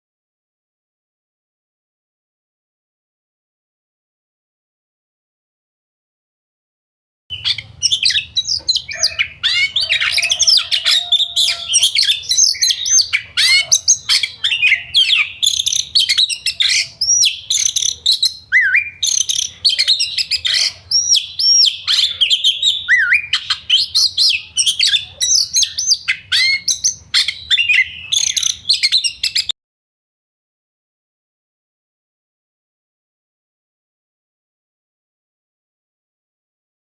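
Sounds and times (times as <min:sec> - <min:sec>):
bird chirping and whistling: 0:07.3 - 0:29.5.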